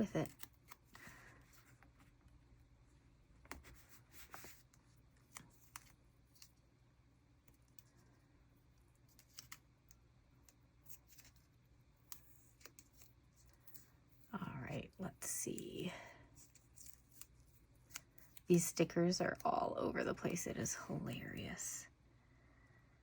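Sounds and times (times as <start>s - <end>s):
low room hum: 0.0s - 23.0s
stickers being peeled: 0.2s - 1.9s, 3.5s - 6.7s, 8.7s - 14.0s, 16.3s - 18.7s.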